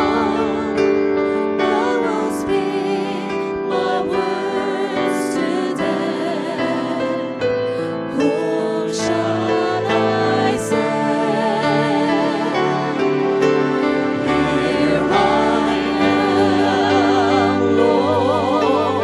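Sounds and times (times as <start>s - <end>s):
voices singing with vibrato: 0.0s - 19.0s
instrumental accompaniment: 6.8s - 19.0s.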